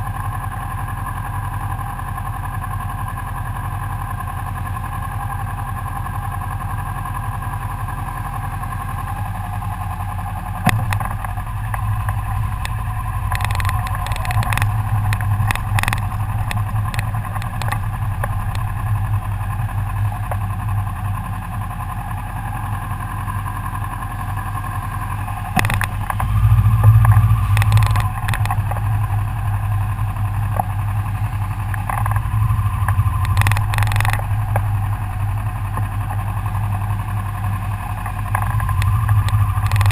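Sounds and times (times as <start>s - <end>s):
motorcycle engine idling: 0.0s - 39.9s
clanks and knocks: 10.7s - 18.8s, 25.6s - 28.9s, 32.9s - 34.7s.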